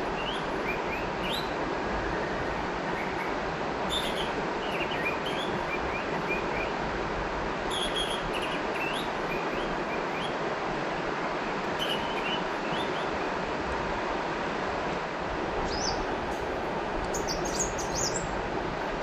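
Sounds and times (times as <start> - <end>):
river water flowing: 0.0 - 19.0
small birds chirping: 3.9 - 6.7, 7.7 - 10.4, 11.8 - 13.2, 15.7 - 18.4.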